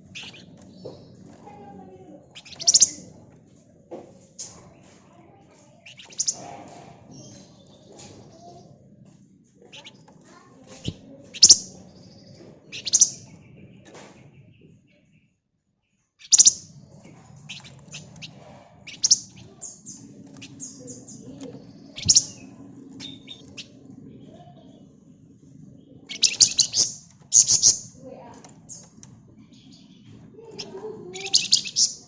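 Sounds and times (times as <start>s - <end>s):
bird twittering: 0.0s - 3.2s, 5.7s - 6.5s, 9.6s - 15.2s, 16.2s - 32.0s
songbird high chirps: 0.0s - 3.2s, 5.6s - 6.4s, 9.7s - 15.4s, 16.2s - 25.0s, 25.8s - 32.0s.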